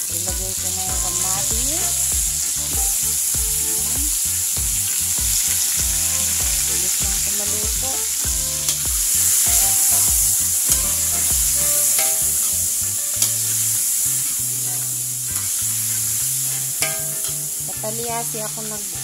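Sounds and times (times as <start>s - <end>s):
vegetables sizzling in hot oil: 0.0s - 19.0s
metal ladle clinking on pan: 11.9s - 12.4s, 16.8s - 17.6s.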